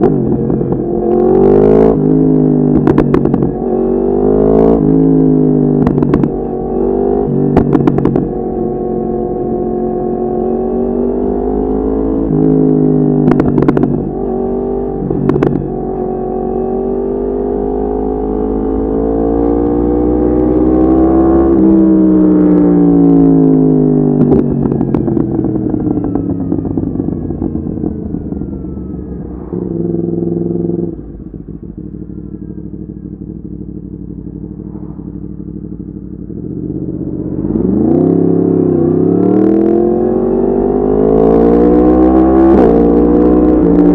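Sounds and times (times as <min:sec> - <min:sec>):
motorcycle engine revving: 0:00.0 - 0:43.9
exhaust cracks: 0:01.9 - 0:03.7, 0:05.6 - 0:06.6, 0:07.3 - 0:08.5.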